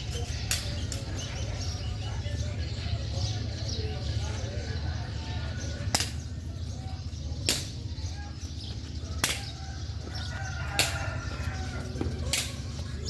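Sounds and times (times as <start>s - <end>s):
sharp cracks: 7.4s - 7.8s, 9.2s - 9.6s.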